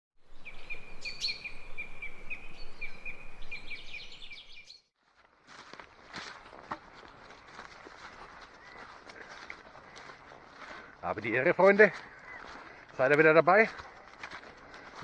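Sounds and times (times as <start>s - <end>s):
bird chirping: 0.2s - 4.9s, 11.1s - 12.8s.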